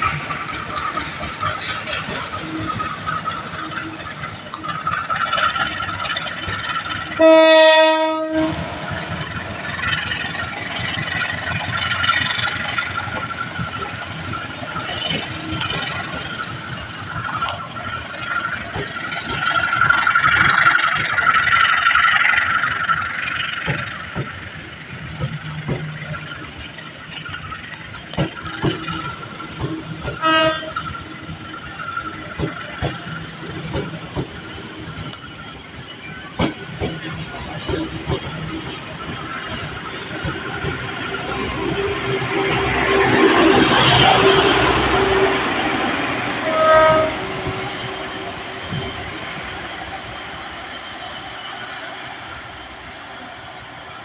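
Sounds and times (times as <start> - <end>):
train wheels on rails: 0.0 - 54.0
train horn blast: 7.2 - 8.8, 30.2 - 30.8, 41.8 - 47.8.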